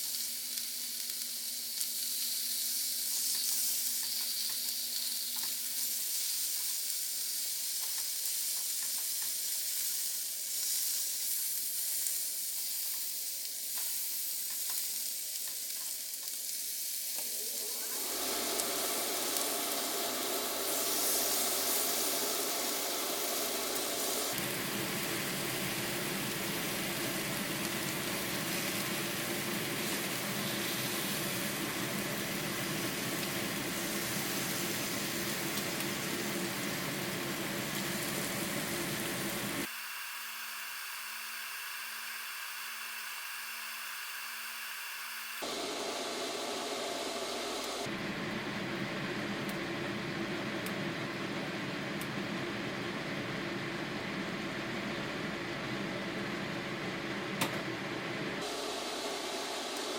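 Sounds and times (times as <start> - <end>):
meat sizzling on a grill: 0.0 - 47.9.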